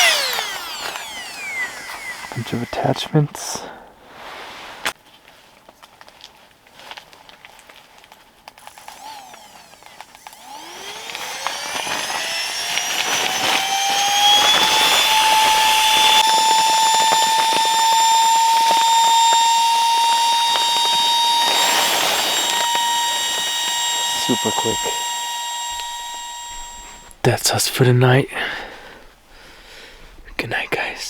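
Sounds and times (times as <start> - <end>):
inflator motor whining: 0.0 - 3.9, 8.6 - 27.6.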